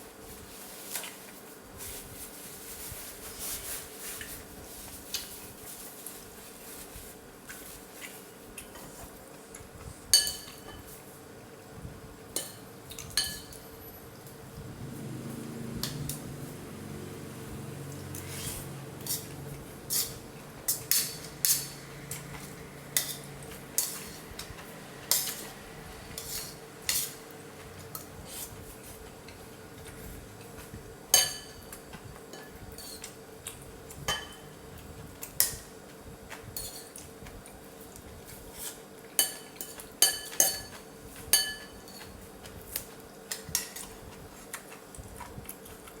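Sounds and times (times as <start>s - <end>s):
cutlery clinking against bowl: 10.1s - 11.0s, 12.3s - 13.8s, 19.0s - 25.6s, 26.2s - 27.2s, 29.3s - 34.6s, 36.5s - 37.1s, 38.6s - 44.0s.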